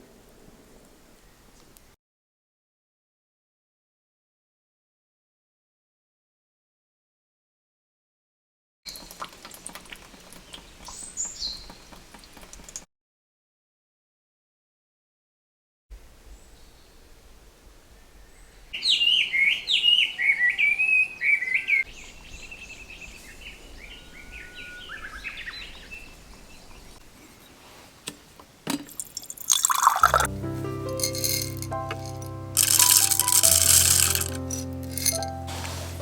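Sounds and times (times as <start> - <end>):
songbirds singing: 0.0 - 1.9, 10.3 - 12.5, 16.3 - 27.6
bird chirping rapidly: 18.8 - 26.8
background music: 29.8 - 36.0.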